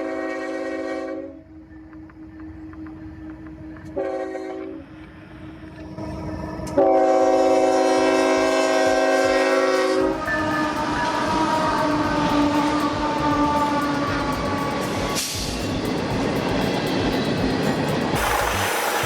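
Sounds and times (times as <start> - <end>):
locomotive air horn blasts: 0.0 - 1.4, 3.9 - 4.9, 6.8 - 15.4
train rumble: 0.0 - 19.0.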